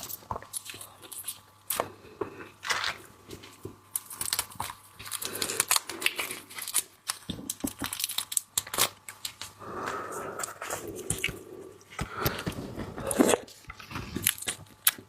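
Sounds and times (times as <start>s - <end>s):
seafood shells crackling: 3.6s - 9.6s.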